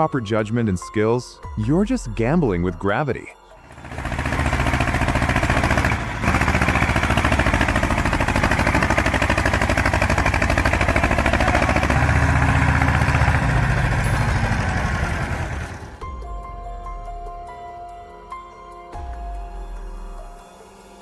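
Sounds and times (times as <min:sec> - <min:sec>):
tractor engine running: 0:03.6 - 0:16.2.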